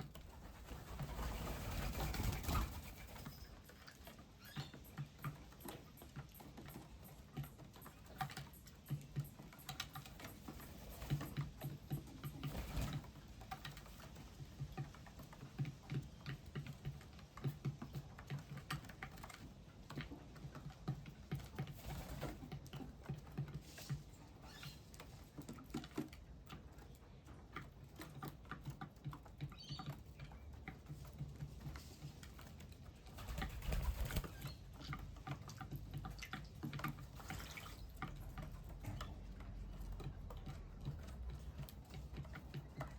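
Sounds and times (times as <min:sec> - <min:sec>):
birds pecking and hopping: 0:00.0 - 0:42.9.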